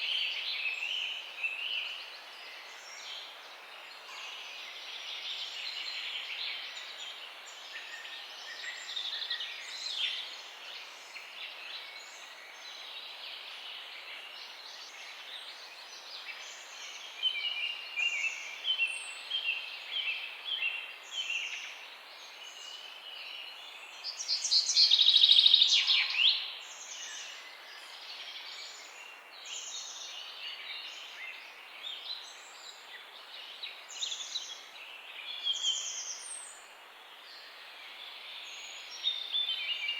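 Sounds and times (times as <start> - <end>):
steady outdoor hiss: 0.0 - 39.9.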